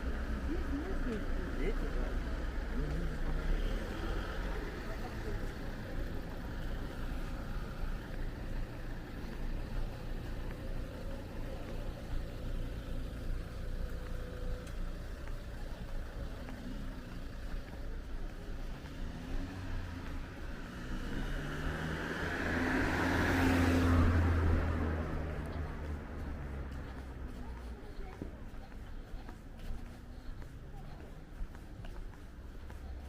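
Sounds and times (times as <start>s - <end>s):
car passing by: 0.0s - 11.8s, 18.6s - 28.8s
car engine: 0.0s - 33.0s.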